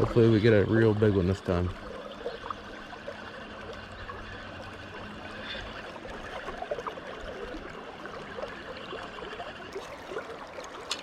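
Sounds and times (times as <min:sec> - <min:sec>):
brook babbling over stones: 0:00.0 - 0:11.0.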